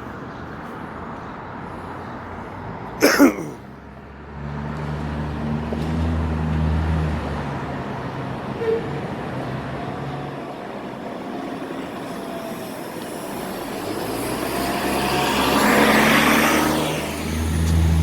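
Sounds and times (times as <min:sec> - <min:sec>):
traffic engine rumble: 0:00.0 - 0:18.0
vehicle passing: 0:03.5 - 0:08.5, 0:13.1 - 0:18.0.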